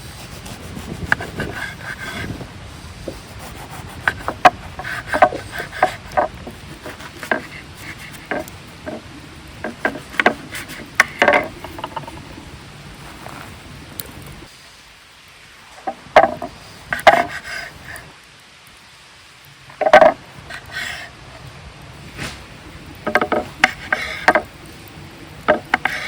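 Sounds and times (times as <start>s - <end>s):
wood scraping rubs: 0.0s - 14.5s, 15.7s - 18.1s, 19.7s - 21.4s, 22.0s - 26.0s
steady low hiss: 0.0s - 26.0s
wooden knocks: 4.1s - 9.0s, 9.6s - 12.3s, 15.8s - 17.4s, 19.8s - 20.2s, 23.0s - 24.5s, 25.4s - 26.0s.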